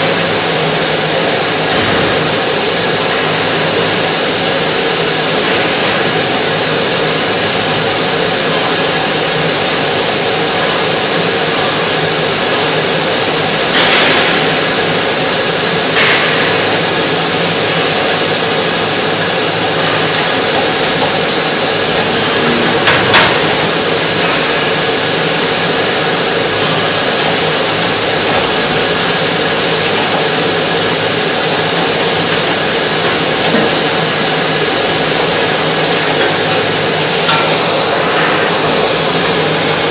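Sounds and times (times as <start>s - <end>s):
excavator diesel engine running: 10.6s - 39.9s.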